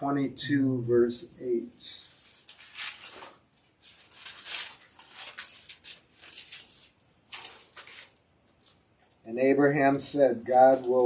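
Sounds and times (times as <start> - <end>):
book pages turning: 2.0 - 8.9.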